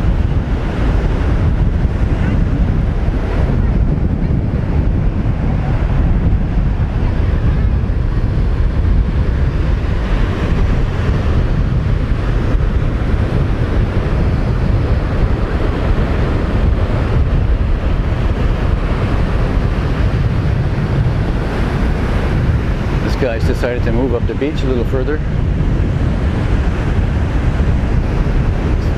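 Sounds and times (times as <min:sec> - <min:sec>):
surf breaking on shore: 0:00.0 - 0:28.9
wind buffeting microphone: 0:00.0 - 0:28.9.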